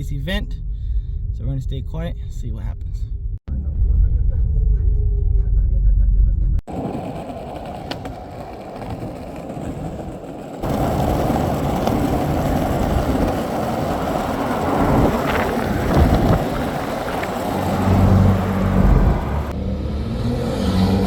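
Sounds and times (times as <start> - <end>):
car engine heard from cabin: 17.4 - 19.6.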